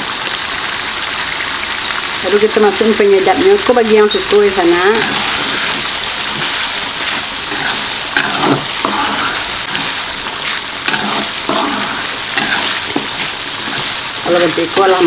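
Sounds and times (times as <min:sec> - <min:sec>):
spice paste sizzling in oil: 0:00.0 - 0:15.0
spatula scraping pan: 0:04.1 - 0:15.0.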